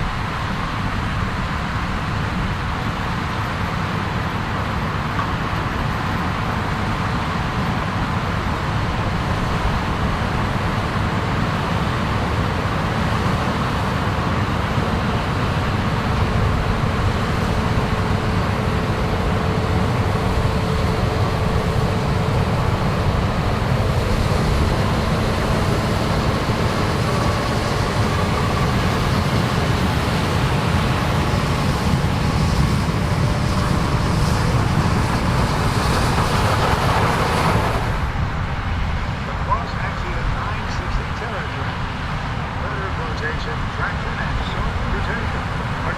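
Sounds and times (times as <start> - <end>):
harvesting machinery engine: 0.0 - 45.9.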